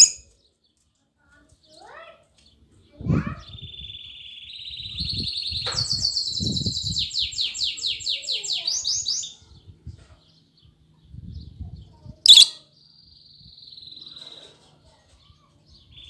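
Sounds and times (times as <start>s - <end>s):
bird trilling: 0.0s - 0.2s, 12.3s - 12.6s
bird chirp: 0.0s - 0.8s, 3.4s - 9.4s, 12.2s - 14.4s, 15.3s - 16.0s.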